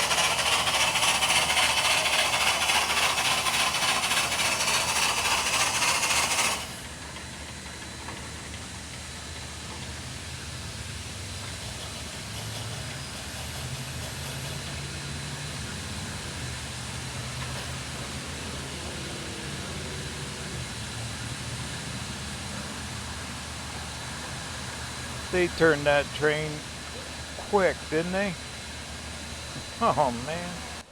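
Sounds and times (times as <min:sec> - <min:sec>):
loud hiss of steam: 0:00.0 - 0:07.2, 0:08.2 - 0:30.8
steady low hum: 0:22.4 - 0:30.9.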